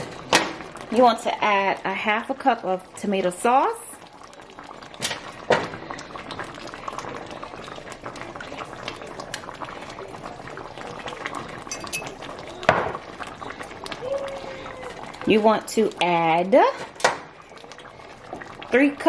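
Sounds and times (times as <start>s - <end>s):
stew bubbling in a pot: 0.0s - 19.0s
utensil clinking against pot: 11.7s - 13.0s.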